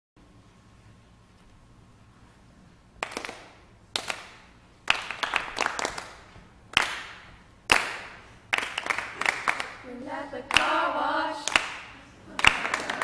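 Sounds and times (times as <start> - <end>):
hands clapping slow beat: 3.0 - 9.8, 10.5 - 13.0.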